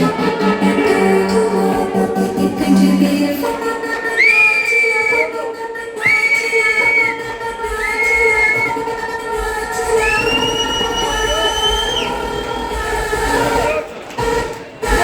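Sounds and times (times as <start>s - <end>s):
held synth chord: 0.0s - 4.2s
trance dance music: 0.0s - 15.0s
high whistle-like synth notes: 9.8s - 13.8s.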